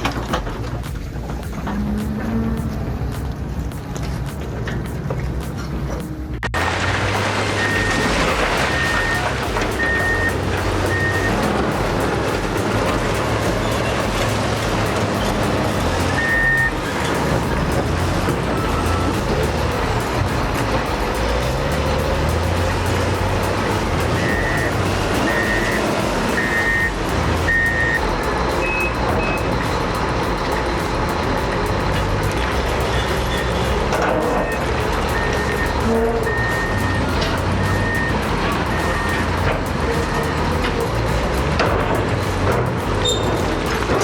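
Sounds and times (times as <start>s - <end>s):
background music: 0.0s - 44.0s
construction machine engine running: 0.0s - 44.0s
backup alarm beeping: 7.5s - 21.2s, 23.1s - 30.3s, 33.0s - 40.5s.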